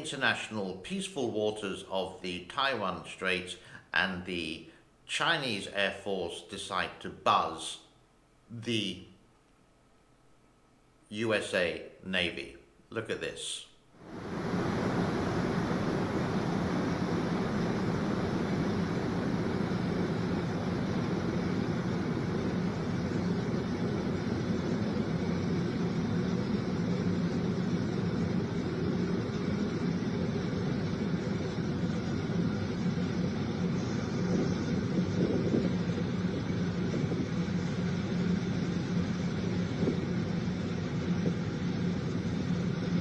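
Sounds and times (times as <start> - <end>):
military aircraft engine drone: 14.0 - 43.0.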